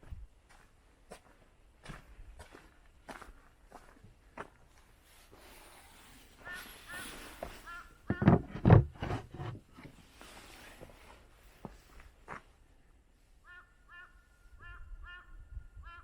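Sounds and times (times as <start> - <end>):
short bird calls: 6.3 - 8.3, 13.4 - 16.0
knocks: 8.1 - 9.5
heavy thumps: 8.1 - 9.9.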